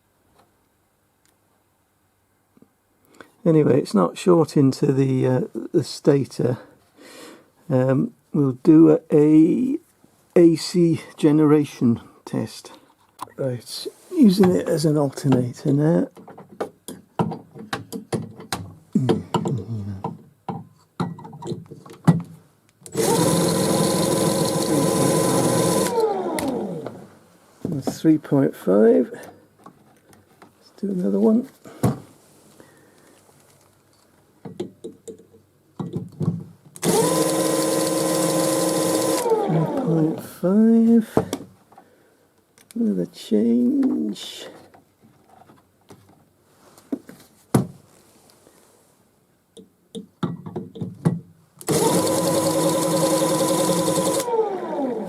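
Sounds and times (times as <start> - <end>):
power drill motor whine: 22.9 - 27.0, 36.8 - 39.9, 51.7 - 55.0.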